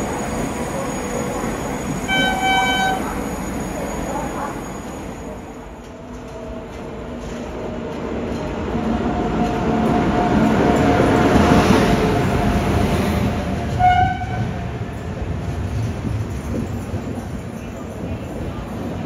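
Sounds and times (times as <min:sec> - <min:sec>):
train rumble and wheel noise: 0:00.0 - 0:19.0
train horn blast: 0:02.1 - 0:03.2, 0:13.8 - 0:14.6.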